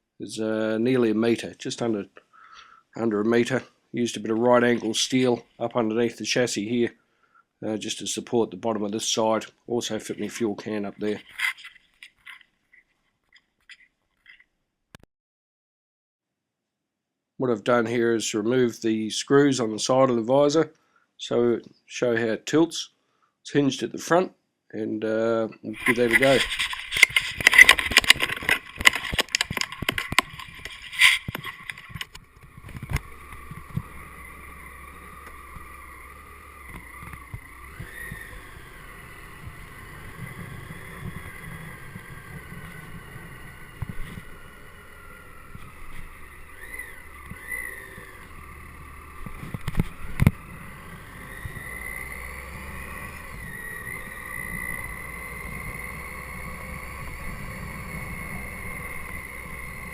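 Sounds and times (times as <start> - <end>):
motorcycle engine: 2.5 - 6.6, 25.8 - 59.9
clicks and knocks: 25.8 - 33.0.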